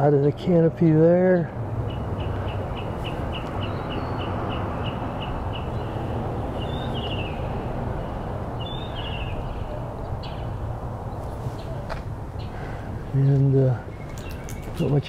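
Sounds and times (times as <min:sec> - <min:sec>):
rushing outdoor noise: 0:00.0 - 0:15.0
bird chirping and warbling: 0:01.3 - 0:11.8.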